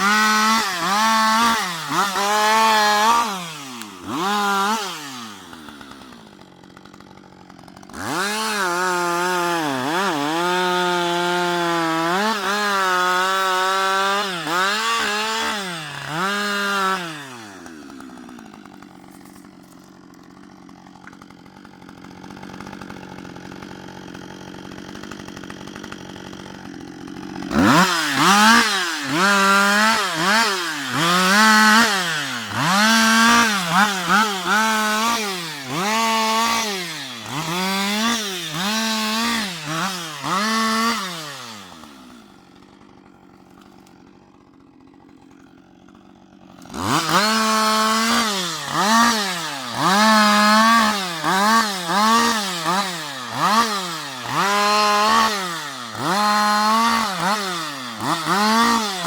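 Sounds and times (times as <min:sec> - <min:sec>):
chainsaw revving and idling: 0:00.0 - 0:59.0.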